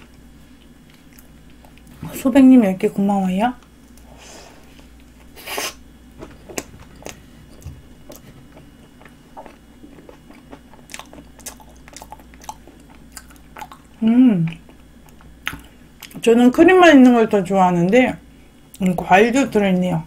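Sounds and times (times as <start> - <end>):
person chewing crunchy pastry: 0.0 - 1.9, 6.5 - 16.2
faint low hum: 0.0 - 20.0.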